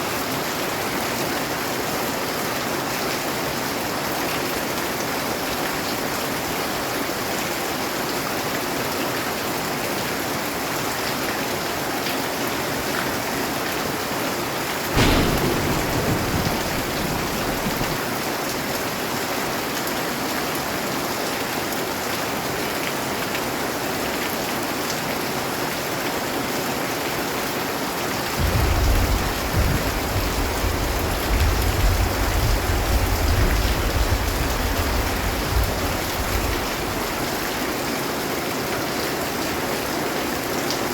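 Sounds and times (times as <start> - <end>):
heavy rainfall: 0.0 - 40.9
thunder crack and rumble: 14.9 - 18.3, 28.2 - 37.8.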